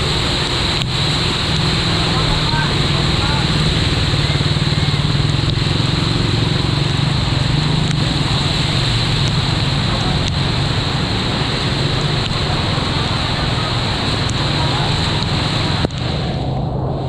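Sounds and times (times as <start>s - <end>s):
constant rushing noise: 0.0s - 17.0s.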